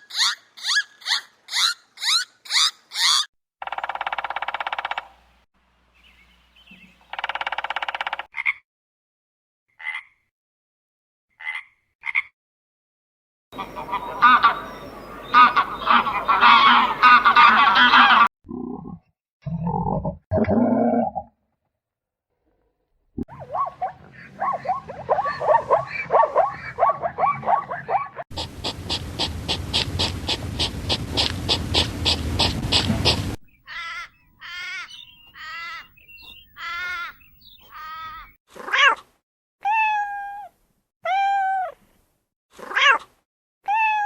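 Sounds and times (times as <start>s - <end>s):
pulsing animal call: 23.3s - 33.4s
animal repeated calls: 23.3s - 35.9s.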